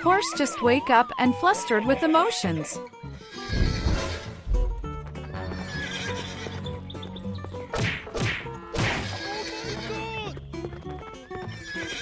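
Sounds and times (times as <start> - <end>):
background music: 0.0 - 12.0
horse neighing: 3.2 - 4.4, 5.4 - 6.7, 9.0 - 10.3, 11.5 - 12.0.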